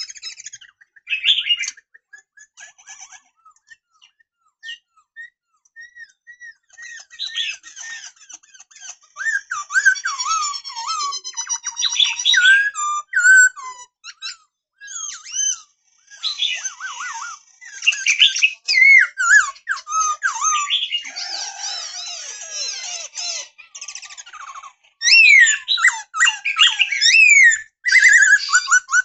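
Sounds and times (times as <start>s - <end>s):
bird singing whistled phrases: 4.1s - 7.6s, 9.2s - 11.0s, 11.9s - 13.6s, 17.8s - 21.1s, 25.0s - 29.0s.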